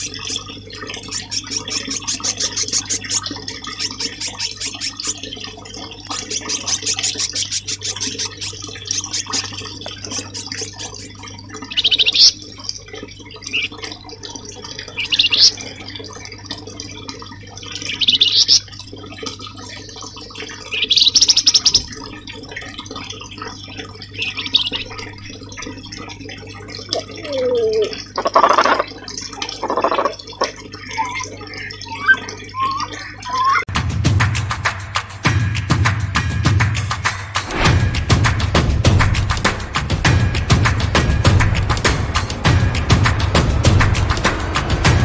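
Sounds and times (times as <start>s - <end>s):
songbird trilling: 0.0s - 12.4s, 30.9s - 33.7s
running water: 0.0s - 45.0s.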